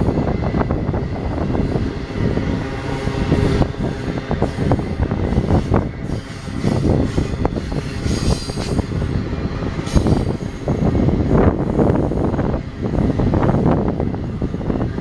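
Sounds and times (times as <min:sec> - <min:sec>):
train wheels clattering on rails: 0:00.0 - 0:15.0
high-pitched wheel squeal: 0:04.1 - 0:08.9.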